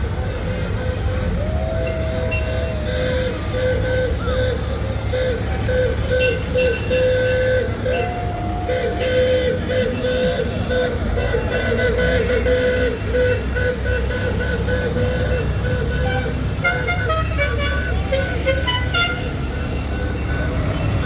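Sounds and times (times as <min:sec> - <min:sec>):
tractor engines rumbling: 0:00.0 - 0:21.0.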